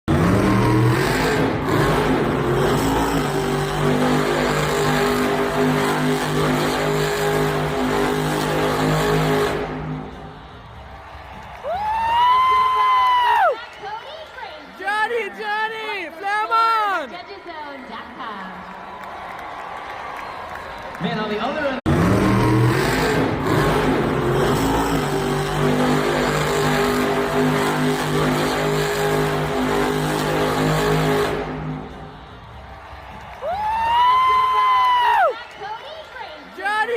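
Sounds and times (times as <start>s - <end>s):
truck engine at high revs: 0.0s - 11.6s, 21.9s - 32.7s.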